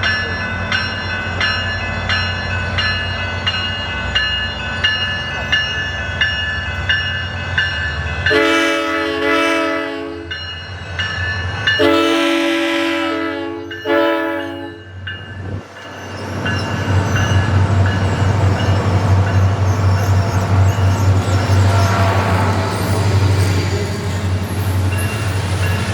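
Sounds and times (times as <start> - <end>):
train horn blasts: 8.3 - 10.3, 11.8 - 14.9, 21.6 - 22.8.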